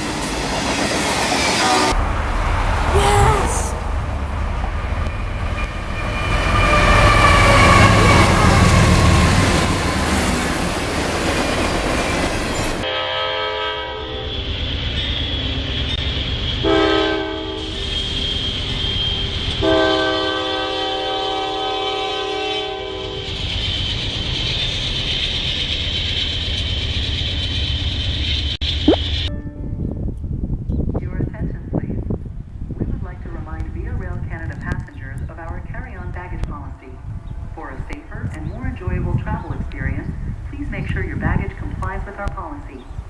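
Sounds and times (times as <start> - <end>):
freight train rumbling: 0.0 - 43.0
locomotive air horn: 12.8 - 14.4, 16.6 - 18.7, 19.6 - 23.3.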